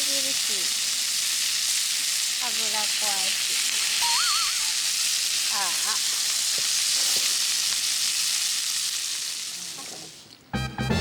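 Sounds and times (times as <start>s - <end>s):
meat sizzling in oil: 0.0s - 10.3s
pitched chirps: 4.0s - 4.9s.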